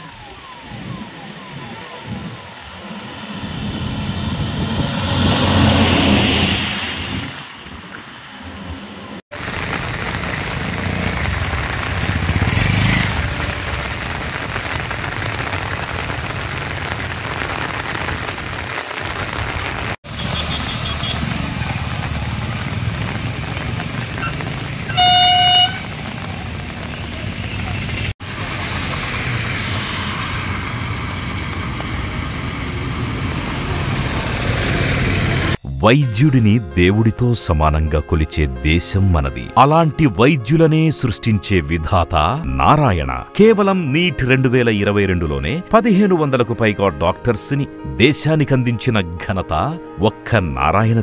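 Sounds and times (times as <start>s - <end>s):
steady rain on road: 0.0s - 4.0s, 9.3s - 35.6s
vehicles swishing past: 0.1s - 9.2s, 9.8s - 14.7s
vehicle horn toot: 20.1s - 21.3s, 24.9s - 26.0s.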